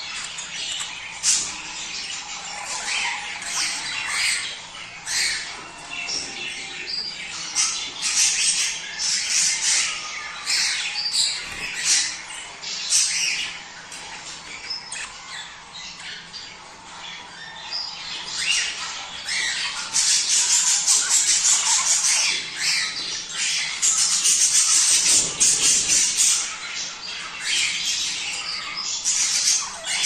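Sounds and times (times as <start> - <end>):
budgerigars chattering and squawking: 0.0 - 30.0.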